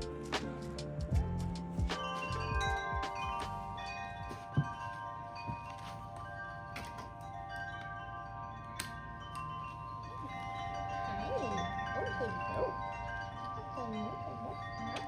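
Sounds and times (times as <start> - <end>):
wind chimes ringing: 0.0 - 15.0.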